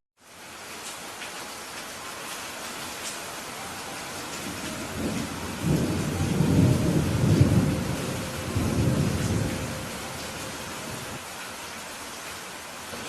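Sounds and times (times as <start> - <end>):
steady rain: 0.2 - 13.0
thunder rumbling: 3.8 - 11.2.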